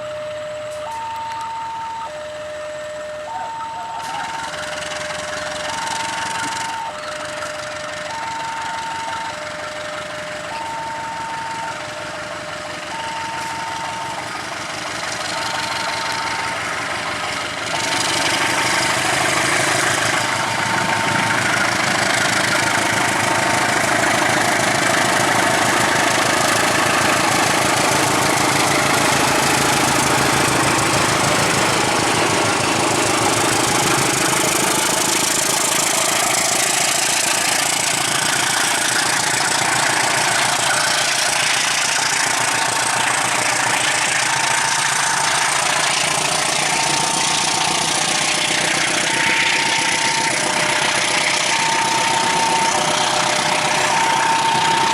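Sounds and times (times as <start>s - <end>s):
engine running: 0.0s - 54.9s.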